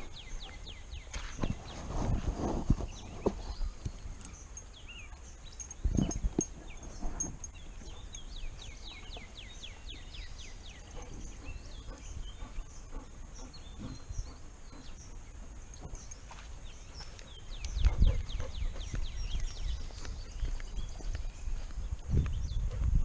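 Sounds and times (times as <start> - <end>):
songbird singing: 0.0 - 23.0
camera thumps and rubbing: 1.2 - 3.7.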